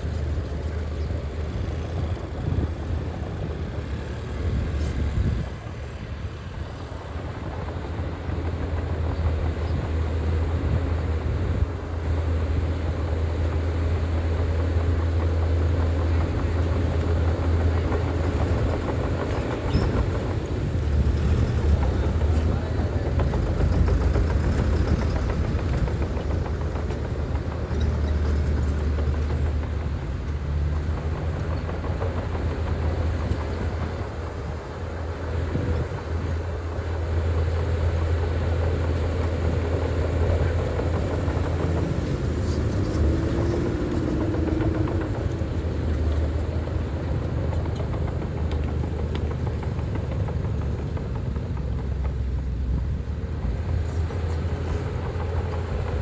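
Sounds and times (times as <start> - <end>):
heavy diesel engine rumbling: 0.0 - 56.0.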